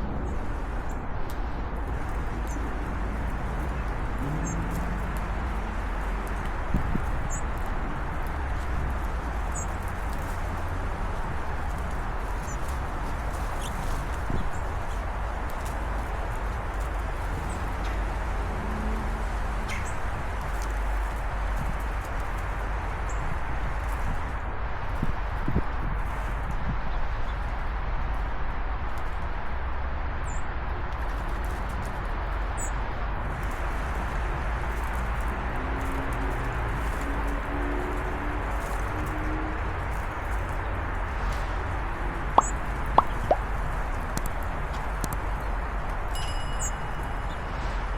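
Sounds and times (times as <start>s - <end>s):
low rushing background noise: 0.0s - 47.9s
steady outdoor hiss: 0.0s - 47.9s
small birds chirping: 2.0s - 10.4s, 32.5s - 32.8s, 42.2s - 43.9s.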